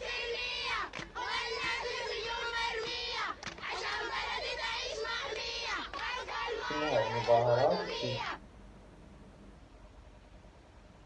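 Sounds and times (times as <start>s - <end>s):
child singing: 0.0s - 8.4s
crowd voices: 5.4s - 8.4s.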